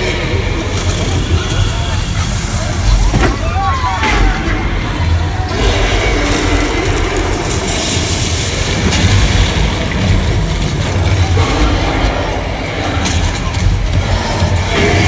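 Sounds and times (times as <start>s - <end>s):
tram rumbling and rattling: 0.0s - 15.0s.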